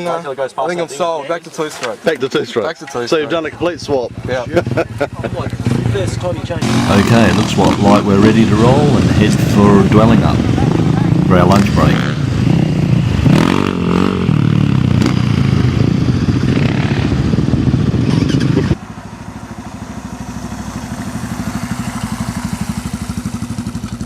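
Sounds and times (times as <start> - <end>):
motorcycle engines revving: 3.0 - 24.0
engine pulsing beat: 3.8 - 18.0.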